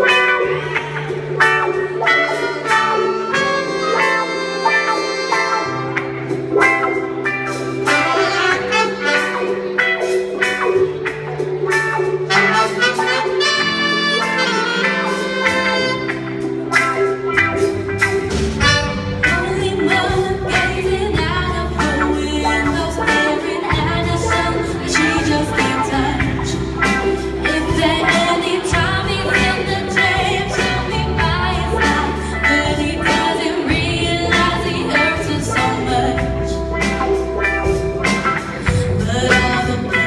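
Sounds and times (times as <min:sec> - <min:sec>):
r and b backing track: 0:00.0 - 0:40.0
person singing: 0:18.6 - 0:40.0.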